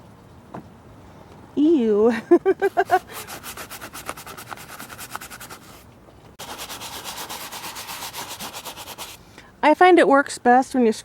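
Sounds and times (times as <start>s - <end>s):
brush scrubbing leather: 2.6s - 5.8s, 6.4s - 9.2s.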